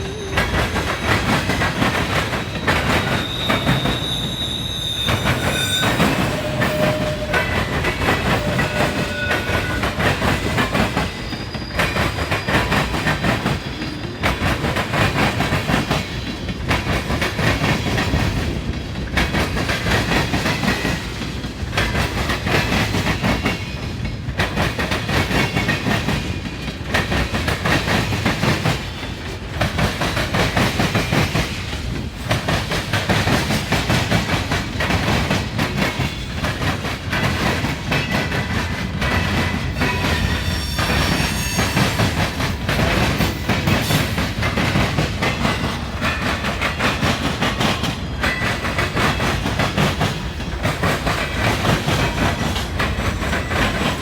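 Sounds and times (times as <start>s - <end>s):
freight train wheels clacking: 0.0s - 54.0s
high wheel squeals: 2.4s - 10.1s, 39.8s - 42.6s.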